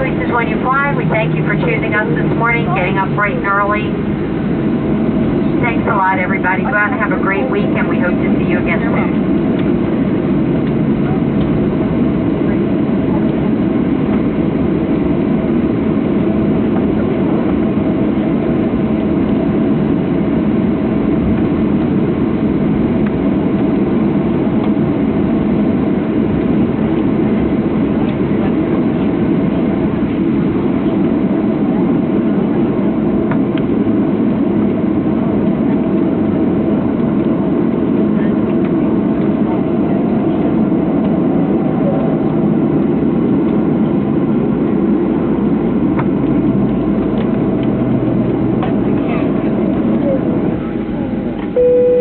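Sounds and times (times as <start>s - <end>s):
aircraft cabin engine rumble: 0.0s - 52.0s
faint steady hum: 51.6s - 52.0s.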